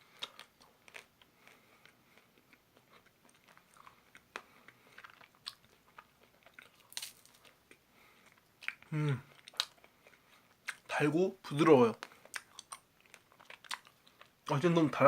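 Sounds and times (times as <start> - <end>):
ice cream cone crunching: 2.5 - 7.5.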